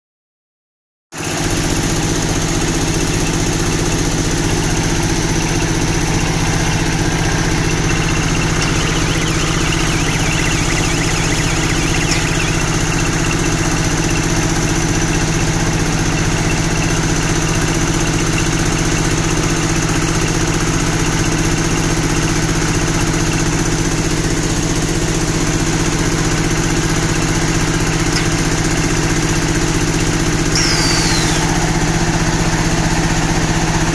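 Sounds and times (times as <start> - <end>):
baler machine droning: 2.0 - 20.5, 26.3 - 32.6.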